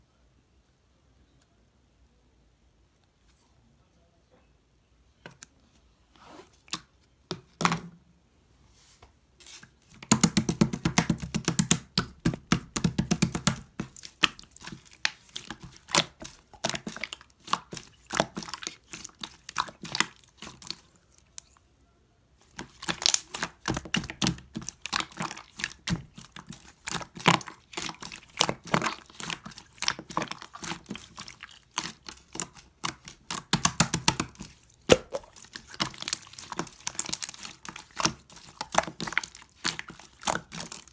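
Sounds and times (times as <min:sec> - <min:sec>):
slime squished by hand crackling: 0:10.0 - 0:21.6, 0:22.4 - 0:40.9.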